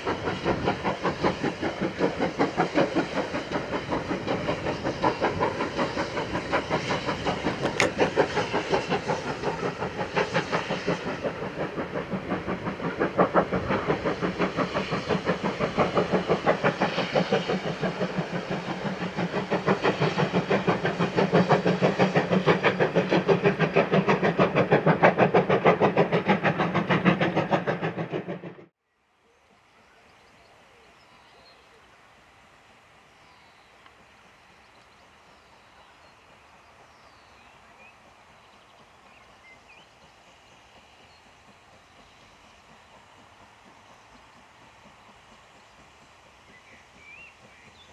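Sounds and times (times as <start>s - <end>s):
steam locomotive exhaust beats: 0.0s - 47.9s.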